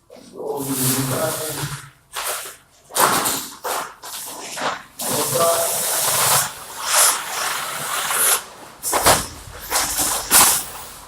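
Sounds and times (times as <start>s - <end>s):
wallpaper ripping off wall: 4.6s - 10.8s.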